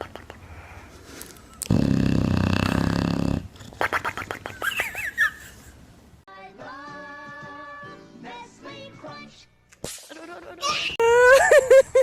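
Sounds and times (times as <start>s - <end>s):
background music with held tones: 6.3s - 9.7s.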